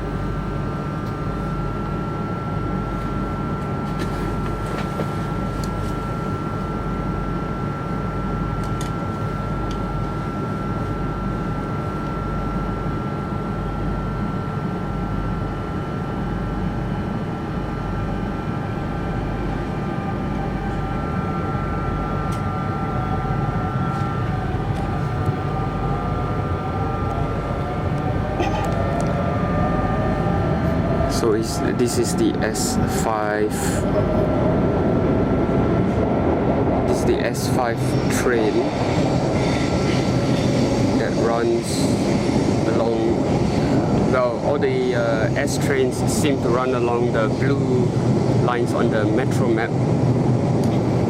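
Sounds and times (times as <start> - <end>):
electric train rumble and hum: 0.0 - 51.0
train motor whine rising: 19.4 - 48.0.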